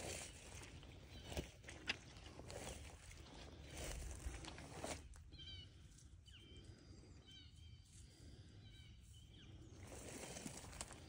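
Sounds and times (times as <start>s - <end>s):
footsteps rustling through vegetation: 0.0s - 5.5s, 9.7s - 11.0s
faint high bird chirps: 5.3s - 8.0s.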